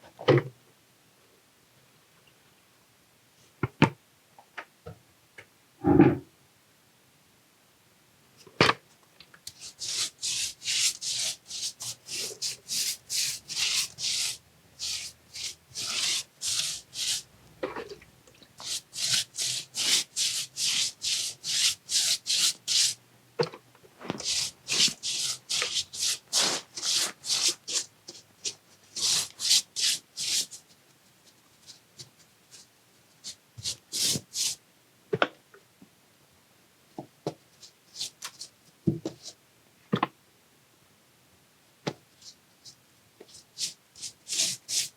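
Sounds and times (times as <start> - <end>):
brush scrubbing brick: 9.6 - 17.3, 18.6 - 23.0, 24.1 - 30.6, 43.5 - 44.9.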